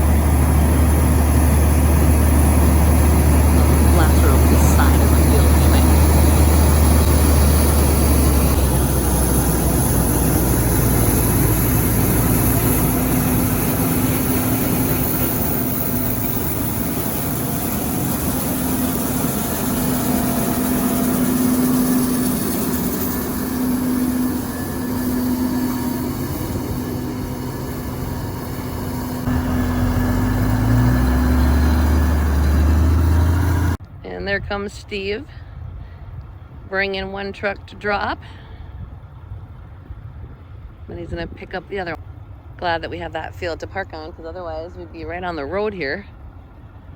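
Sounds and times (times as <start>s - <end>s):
heavy machinery engine running: 0.0s - 33.8s.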